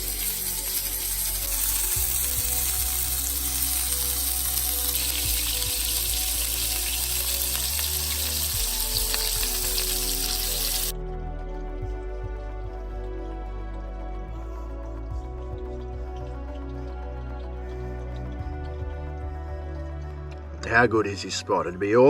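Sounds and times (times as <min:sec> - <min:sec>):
food sizzling in a pan: 0:00.0 - 0:10.9.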